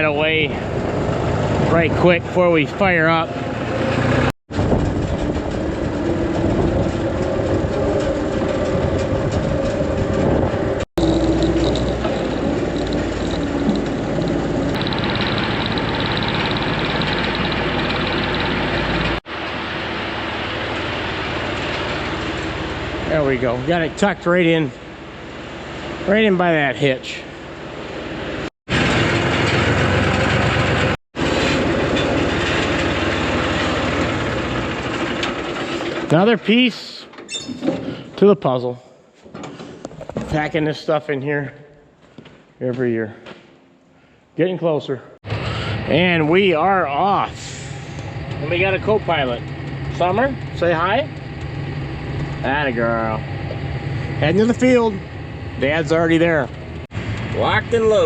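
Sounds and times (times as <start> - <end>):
farm machine engine running: 0.0 - 26.1, 27.4 - 36.4.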